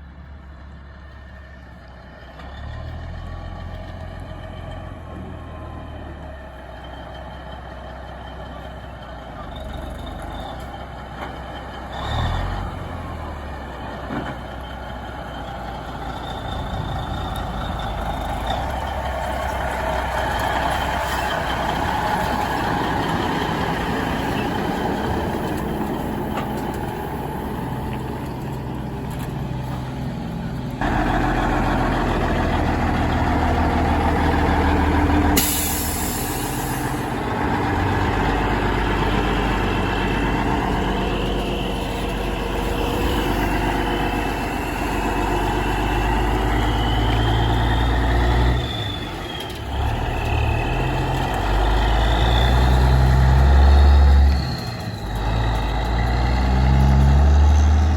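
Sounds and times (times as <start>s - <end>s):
heavy truck engines running: 0.0s - 57.9s.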